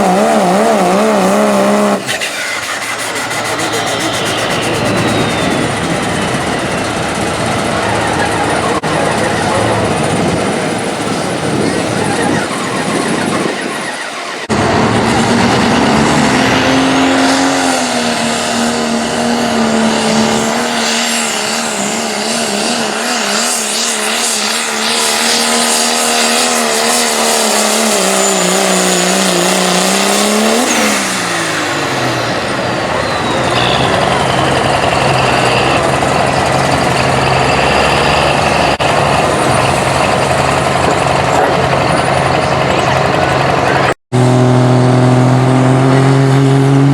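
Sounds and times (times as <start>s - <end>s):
turbo whistle: 0.0s - 8.9s, 32.8s - 39.5s
diesel engine at full throttle: 0.0s - 46.9s.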